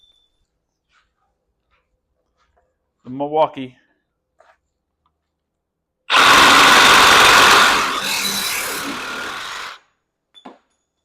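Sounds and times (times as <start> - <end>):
reciprocating saw cutting pipe: 6.1 - 9.8.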